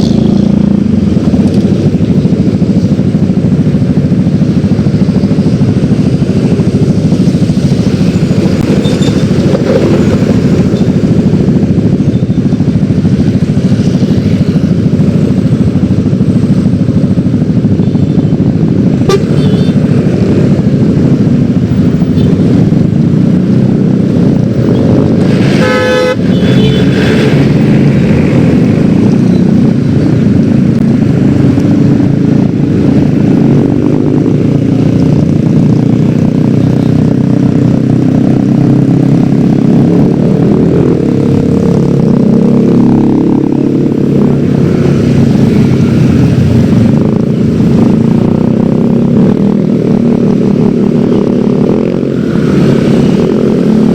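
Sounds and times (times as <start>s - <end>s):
scooter engine running: 0.2s - 53.9s
vehicle horn toot: 19.0s - 19.8s, 25.5s - 27.4s.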